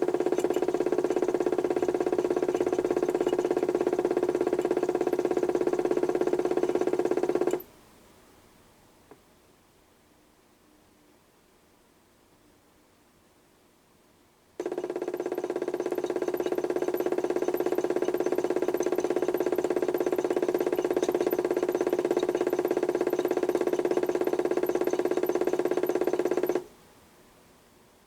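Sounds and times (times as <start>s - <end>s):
electric motor humming: 0.0s - 7.6s, 14.6s - 26.6s.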